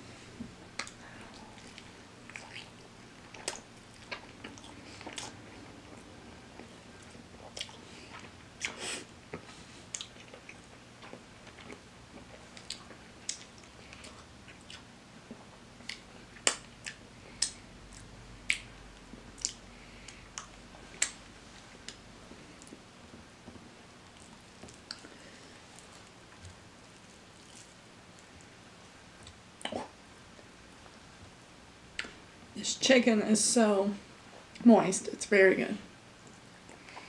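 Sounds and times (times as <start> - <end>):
person chewing fried chicken: 0.8 - 21.2, 23.4 - 28.3.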